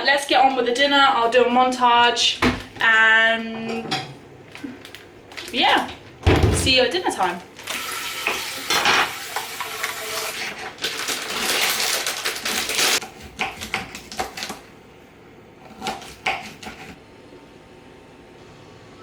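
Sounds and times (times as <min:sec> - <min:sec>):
utensils and dishes clattering: 0:07.7 - 0:14.5.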